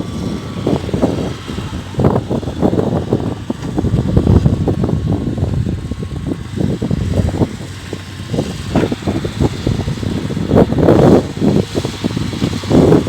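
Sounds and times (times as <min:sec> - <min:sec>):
excavator running: 0:00.0 - 0:13.0.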